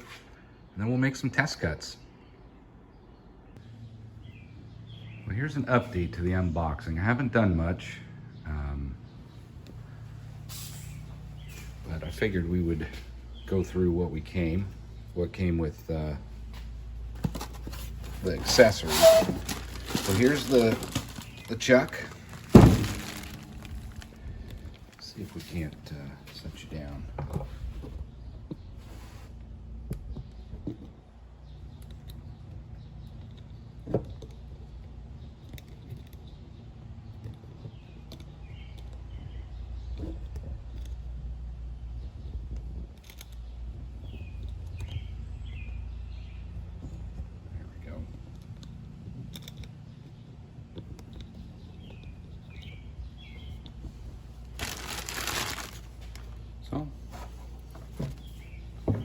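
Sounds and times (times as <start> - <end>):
bird chirping: 2.0 - 7.0, 43.3 - 48.8, 49.4 - 59.0
steady low hum: 2.0 - 59.0
metal parts clicking and clinking: 17.2 - 25.8, 48.3 - 49.8.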